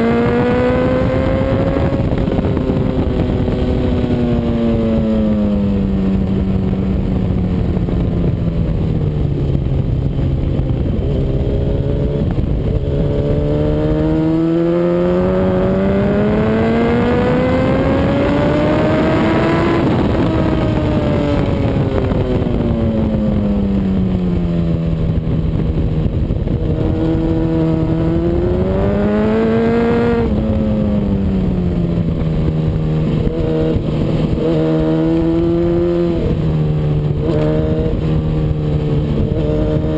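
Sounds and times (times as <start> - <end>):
motorcycle engine revving: 0.0 - 39.9
steady rushing noise: 0.0 - 39.9.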